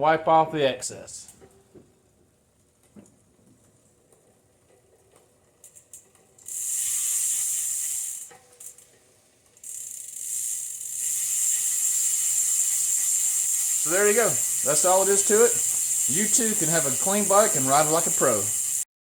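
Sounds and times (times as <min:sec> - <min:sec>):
bicycle freewheel ratchet buzzing: 0:04.0 - 0:18.9.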